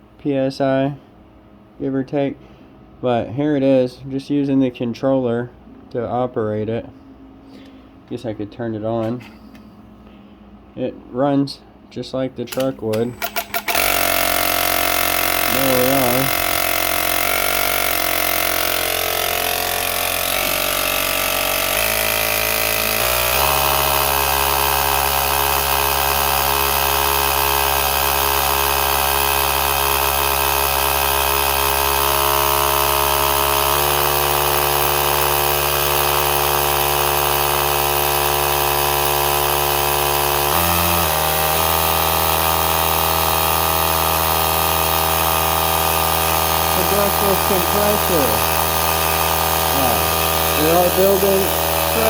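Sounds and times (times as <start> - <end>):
air compressor running: 12.5 - 52.0.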